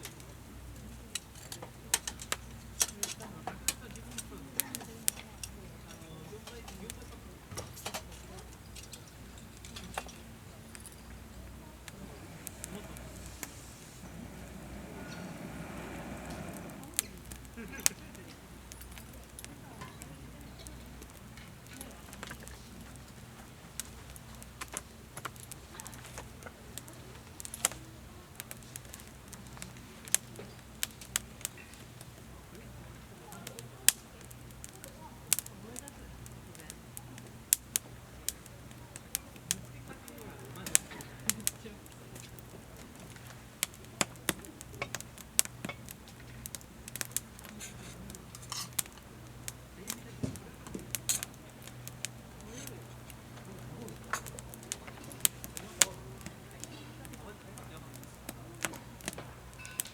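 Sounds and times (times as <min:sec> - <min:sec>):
wood fire crackling: 0:00.0 - 0:59.9
faint low hum: 0:09.6 - 0:18.3
hiss: 0:11.8 - 0:17.9.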